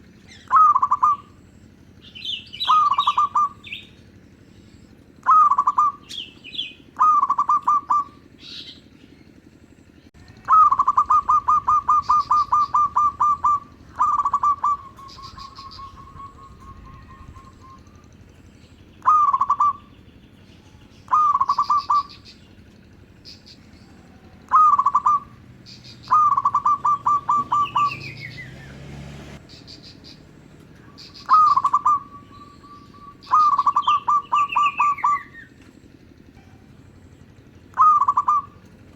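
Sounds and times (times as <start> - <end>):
doves cooing: 0.0 - 38.9
small birds chirping: 0.0 - 38.9.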